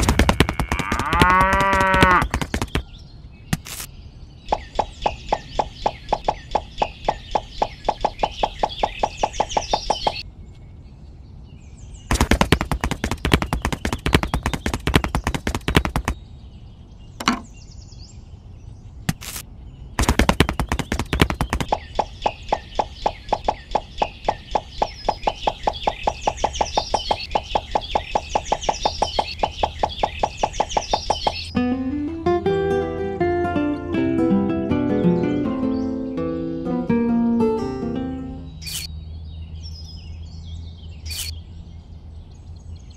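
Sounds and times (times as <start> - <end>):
rapid even knocking: 0.0 - 2.8, 12.1 - 16.2, 20.0 - 22.1
bird-like chirps: 1.6 - 31.6, 38.3 - 42.9.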